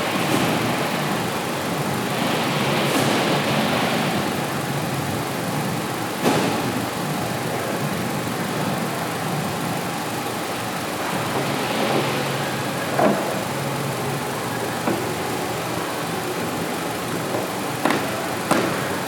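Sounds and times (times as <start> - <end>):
car engine idling: 4.2 - 19.0
sharp knock in engine bay: 17.3 - 19.0.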